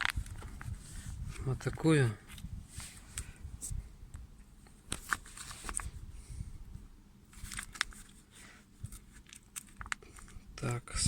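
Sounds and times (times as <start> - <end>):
packet rustling and clicking: 0.0 - 0.7, 4.9 - 5.9, 7.3 - 8.2, 8.8 - 10.8.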